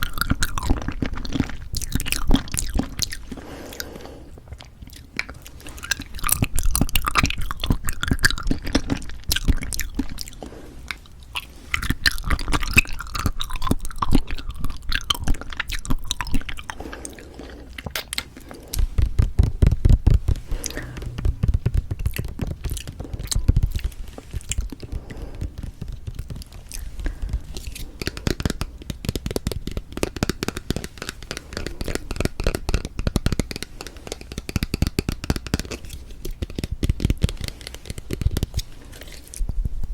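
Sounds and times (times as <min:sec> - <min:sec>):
wet clicky chewing: 0:04.5 - 0:38.6
low rumble: 0:18.8 - 0:24.8.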